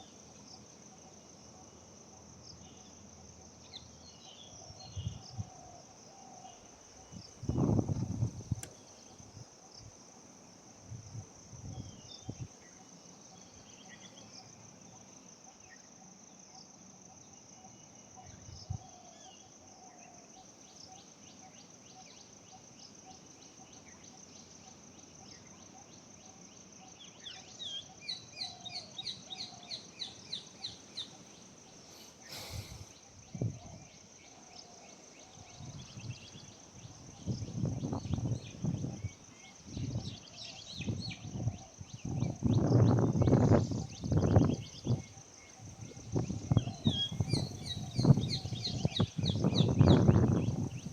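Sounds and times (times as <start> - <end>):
high insect drone: 0.0 - 50.9
bird chirps: 46.2 - 50.9.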